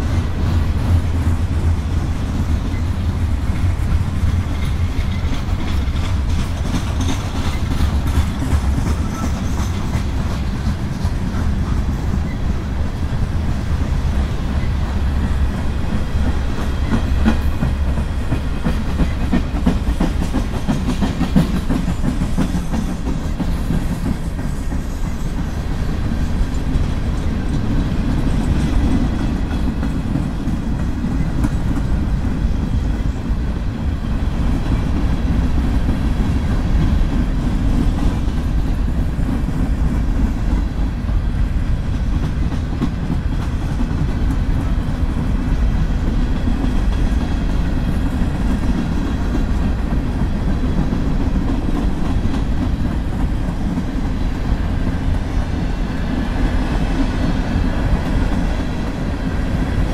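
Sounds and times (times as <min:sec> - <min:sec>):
train wheels rumbling on rails: 0:00.0 - 0:59.9
wheels clicking over rail joints: 0:00.0 - 0:59.9.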